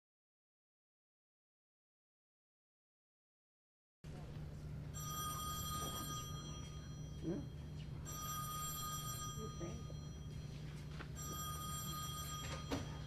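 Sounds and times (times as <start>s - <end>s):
steady low hum: 4.1s - 13.0s
telephone bell ringing: 4.9s - 13.0s.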